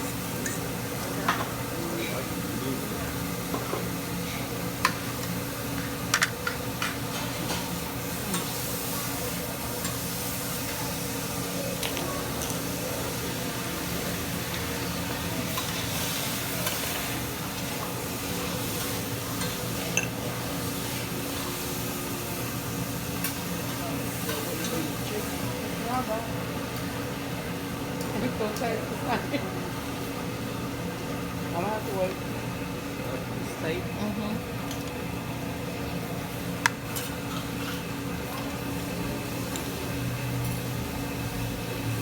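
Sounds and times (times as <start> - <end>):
food sizzling on a griddle: 0.0 - 32.8.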